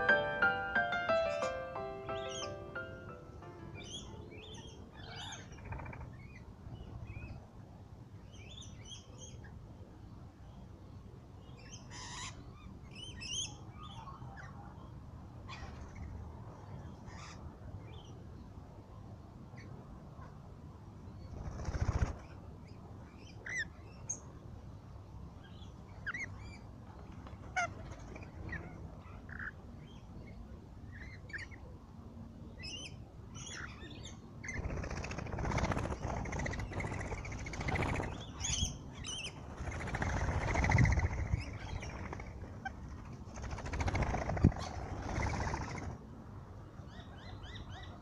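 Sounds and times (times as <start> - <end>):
birds chirping: 0.0 - 7.0, 32.6 - 42.7
harsh bird sounds: 0.0 - 7.4, 32.6 - 42.7.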